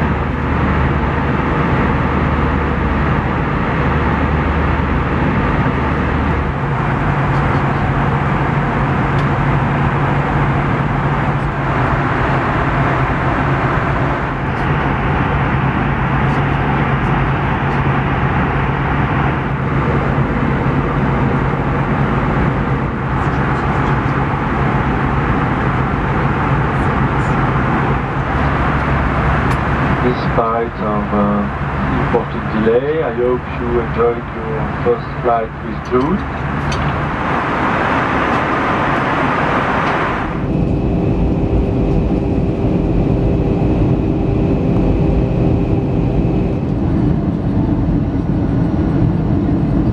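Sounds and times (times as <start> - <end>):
aircraft engines and airflow rush: 0.0 - 49.9
low hum stepping up in pitch: 0.0 - 49.9.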